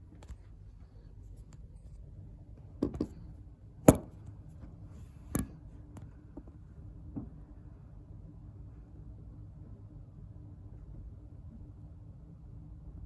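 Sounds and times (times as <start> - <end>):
sharp knocks and clicks: 3.9 - 4.2.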